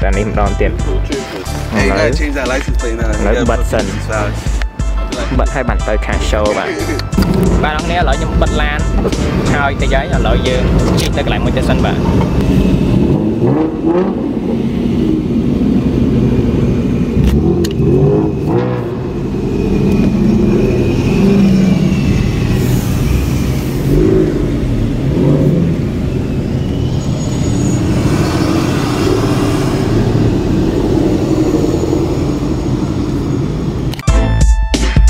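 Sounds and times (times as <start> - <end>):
car engine running: 7.2 - 34.0.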